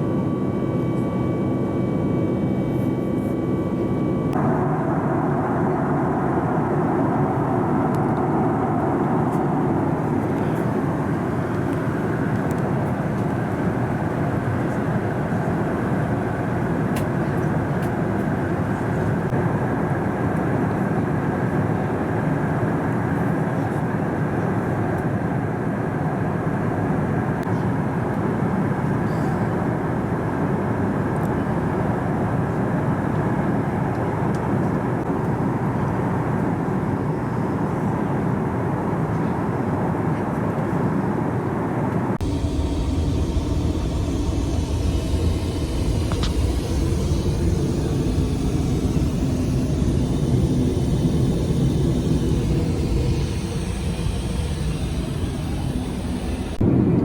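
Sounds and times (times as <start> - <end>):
jet engines: 0.0 - 57.0
airflow rushing: 42.2 - 57.0.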